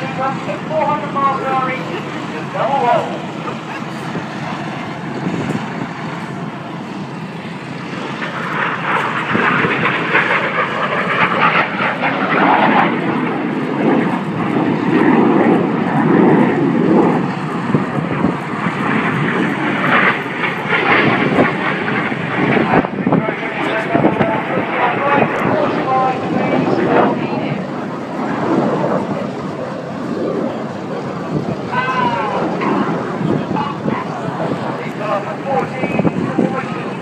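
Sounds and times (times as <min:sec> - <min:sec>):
jets flying past: 0:00.0 - 0:37.0.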